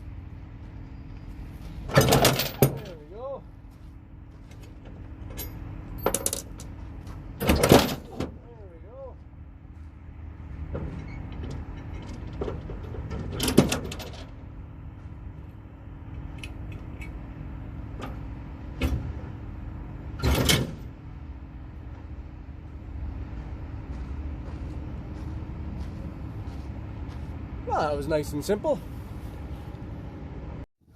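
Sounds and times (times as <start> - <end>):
metallic clattering and knocking: 1.9 - 3.0, 4.8 - 6.7, 7.4 - 8.4, 10.7 - 14.4.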